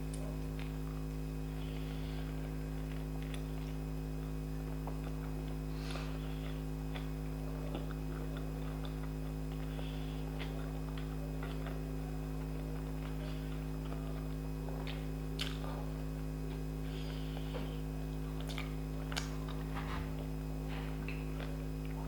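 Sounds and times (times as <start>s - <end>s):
low electrical hum: 0.0s - 22.0s
person chewing: 0.1s - 22.0s
mouth clicks and smacks: 14.8s - 15.7s.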